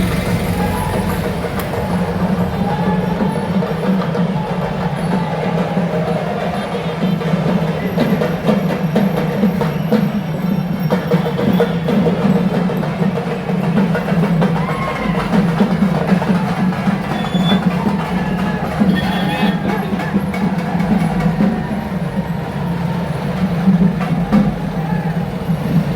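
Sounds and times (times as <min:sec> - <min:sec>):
steady din: 0:00.0 - 0:06.3
ritual drumming and percussion: 0:00.0 - 0:25.9.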